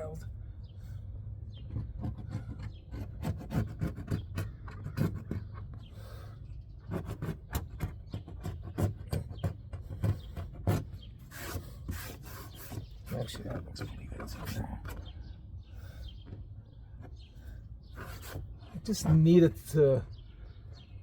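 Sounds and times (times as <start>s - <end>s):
scraper rasping on metal: 1.6s - 15.2s, 16.9s - 19.7s.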